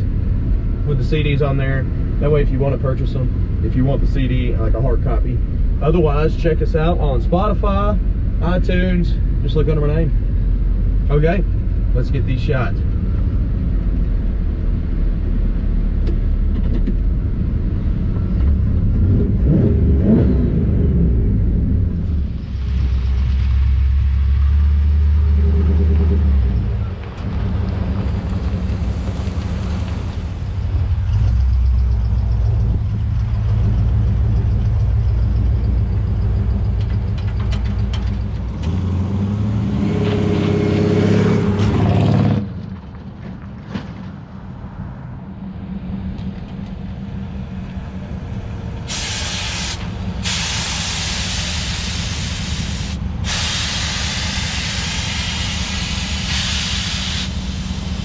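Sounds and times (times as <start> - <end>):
truck engine rumbling: 0.0 - 58.0
air suspension hissing: 48.8 - 58.0.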